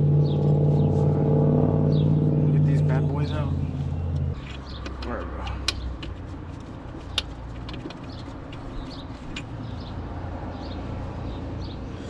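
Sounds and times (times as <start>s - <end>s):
low hum: 0.0s - 4.7s.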